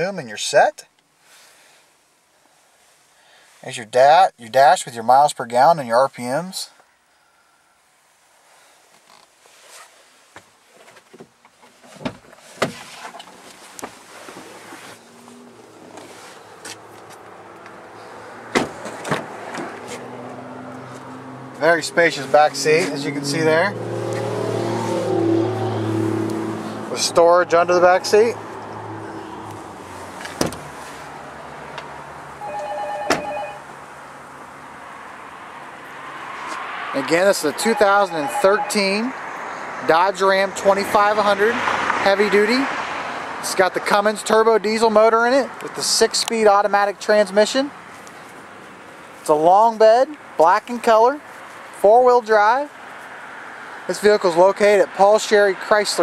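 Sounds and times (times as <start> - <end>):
truck door clunks: 18.5 - 19.8, 30.2 - 30.7
truck door clicks: 30.2 - 30.7
electronic beep tone: 37.8 - 38.8.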